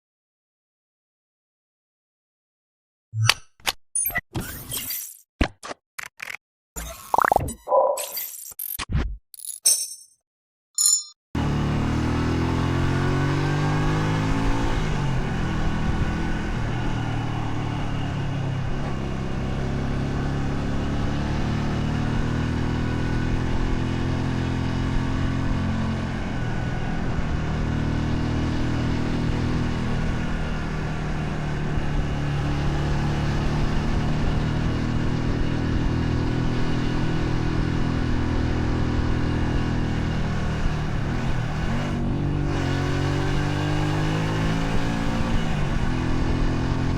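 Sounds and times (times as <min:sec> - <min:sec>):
motorcycle engine revving: 0:11.4 - 0:46.9.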